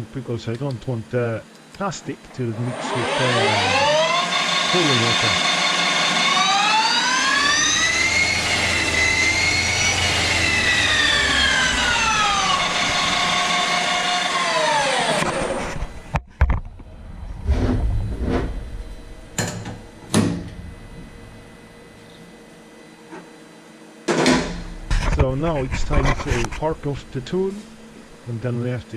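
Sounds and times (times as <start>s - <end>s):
lathe spindle whining: 2.5s - 16.2s.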